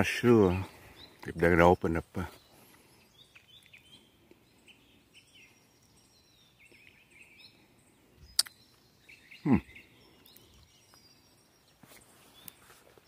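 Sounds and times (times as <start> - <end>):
small birds chirping: 0.0 - 13.0
sharp click: 8.4 - 8.6.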